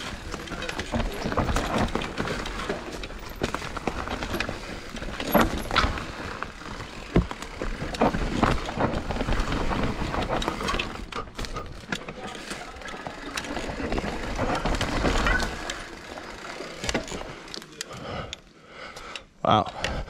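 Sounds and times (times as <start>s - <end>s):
bike rattling over bumps: 0.0s - 17.8s
bike tyres on dirt: 0.0s - 18.3s.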